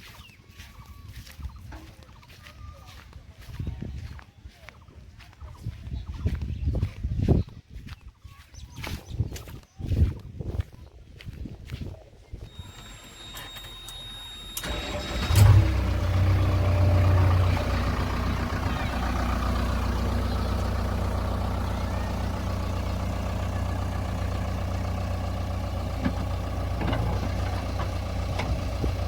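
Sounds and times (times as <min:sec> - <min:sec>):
diesel engine starting and idling: 0:12.4 - 0:29.0.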